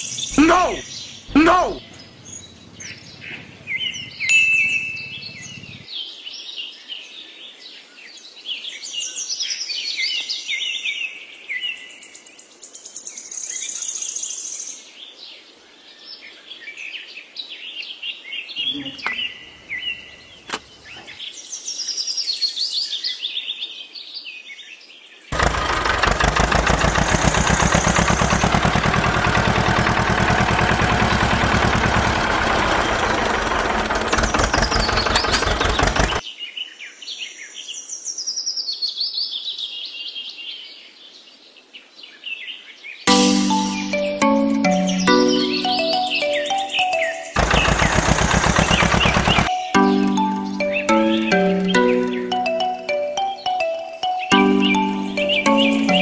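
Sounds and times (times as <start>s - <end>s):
small birds chirping and whistling: 0.0s - 5.8s, 50.4s - 52.4s
engine running with even knock: 25.4s - 36.2s, 47.4s - 49.5s.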